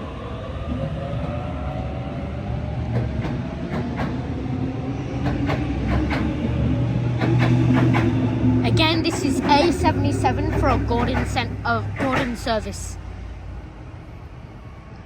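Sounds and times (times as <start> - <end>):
wheels clicking over rail joints: 8.9 - 12.9.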